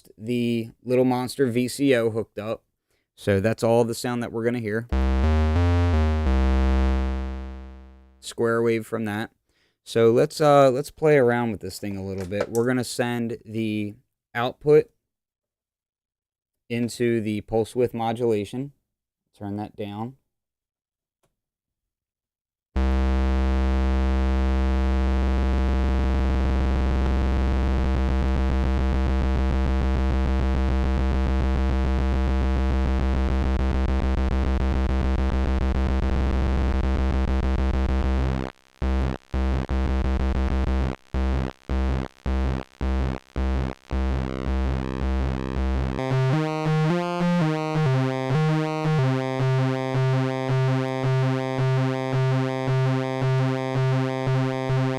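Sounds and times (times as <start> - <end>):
buzzy synthesizer drone: 4.9 - 8.3, 22.8 - 54.9.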